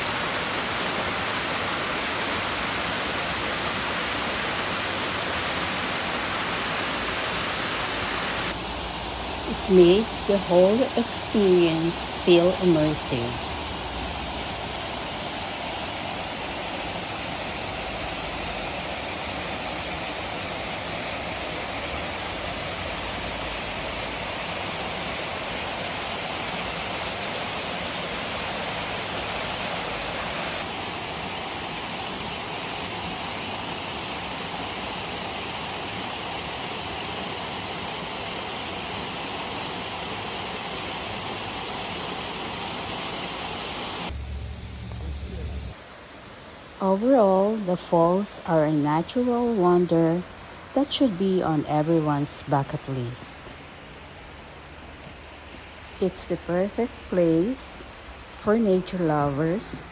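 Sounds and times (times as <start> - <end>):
waterfall rushing: 0.0 - 46.8.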